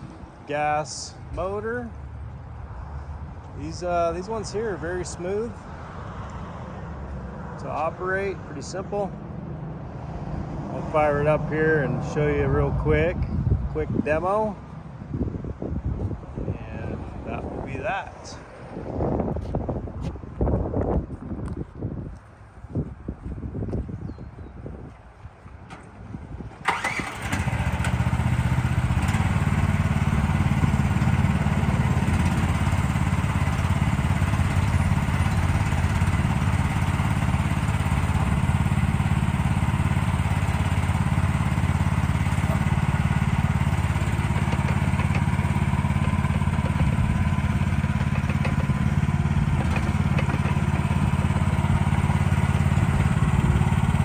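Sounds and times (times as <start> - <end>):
excavator engine starting and running: 25.6 - 54.0.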